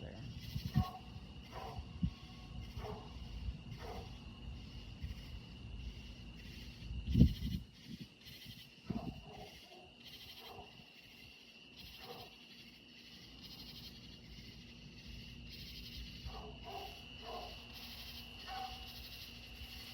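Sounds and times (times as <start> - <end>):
cricket trill: 0.0 - 19.9
pulsing high insect buzz: 0.0 - 19.9
dog barking: 0.7 - 2.0, 2.7 - 4.2, 8.9 - 10.8, 12.0 - 12.4, 16.3 - 17.6, 18.4 - 18.9.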